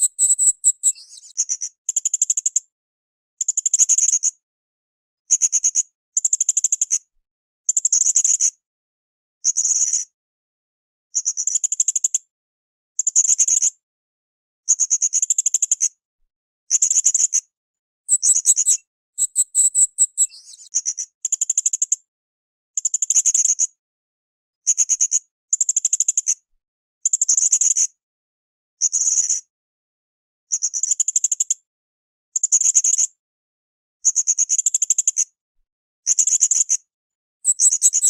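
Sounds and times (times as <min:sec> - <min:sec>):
parrot buzzing trill: 0:18.1 - 0:20.3, 0:37.5 - 0:38.0
parrot shrill rising notes: 0:18.1 - 0:20.3.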